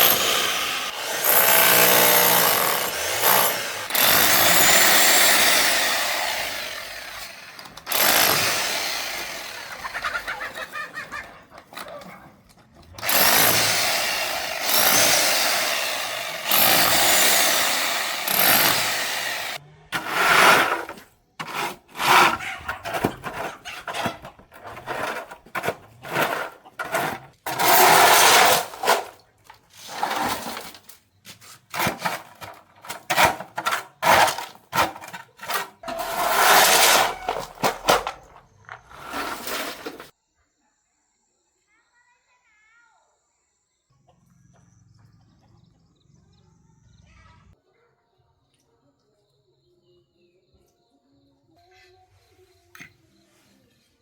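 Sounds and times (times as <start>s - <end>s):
hand tool scraping hard surface: 0.0s - 12.2s, 13.0s - 40.1s.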